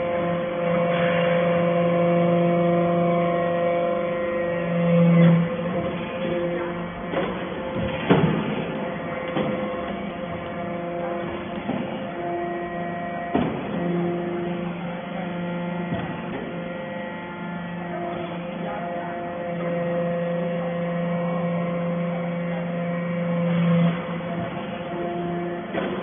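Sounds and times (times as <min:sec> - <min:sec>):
baler electric hum: 0:00.0 - 0:26.0.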